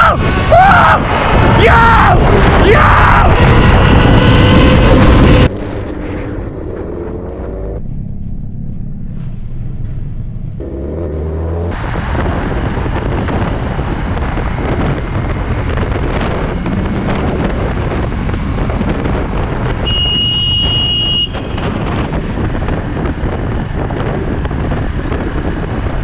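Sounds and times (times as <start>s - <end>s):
wind rushing over microphone: 0.0s - 5.6s, 11.4s - 26.0s
road noise: 0.0s - 26.0s
motorcycle engine: 2.2s - 26.0s.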